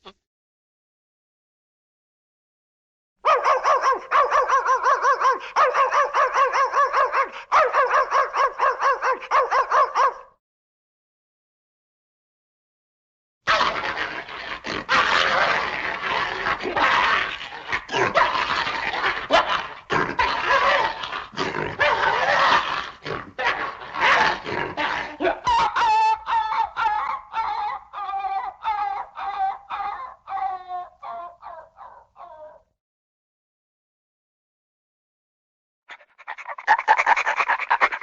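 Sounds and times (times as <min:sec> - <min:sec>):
animal vocalizing: 0:35.9 - 0:38.0.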